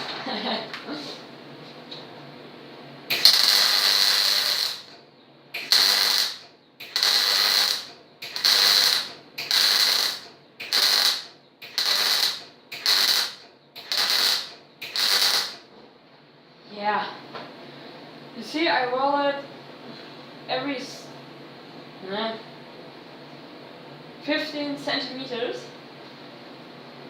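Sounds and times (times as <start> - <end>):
welder arc crackling: 3.1 - 15.7.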